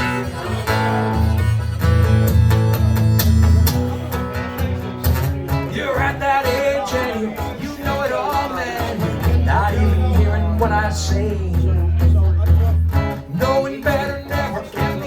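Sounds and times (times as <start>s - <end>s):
harmonica melody: 0.0s - 4.9s
acoustic guitar strumming: 0.0s - 15.0s.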